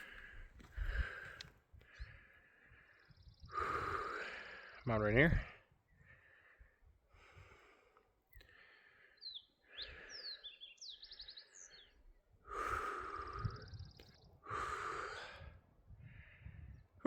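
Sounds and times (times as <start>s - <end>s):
person breathing hard: 0.0s - 4.8s, 6.0s - 10.6s, 11.8s - 16.8s
songbirds chirping: 0.0s - 15.4s
bird trill: 9.2s - 12.0s.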